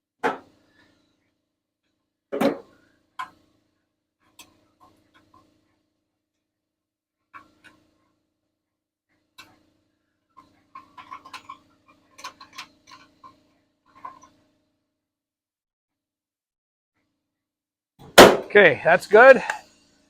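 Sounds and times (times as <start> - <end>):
metal parts and tools clinking: 10.4 - 14.4.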